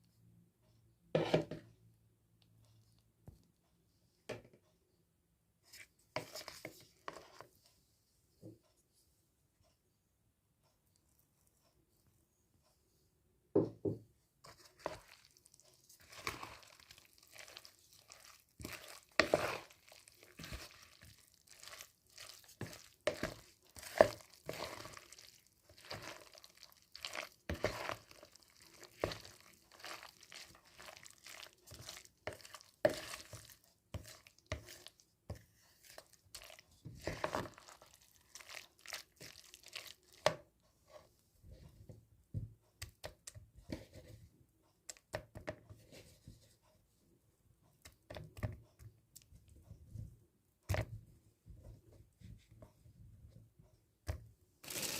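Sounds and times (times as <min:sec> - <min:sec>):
rustling or tearing: 0:14.5 - 0:35.0, 0:35.8 - 0:40.2, 0:54.6 - 0:54.9.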